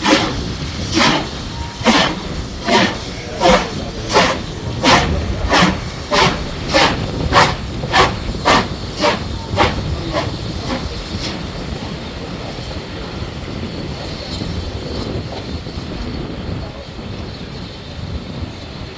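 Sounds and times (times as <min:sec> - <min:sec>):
steady rumble: 0:00.0 - 0:14.3
steam locomotive chuffing: 0:00.0 - 0:18.9.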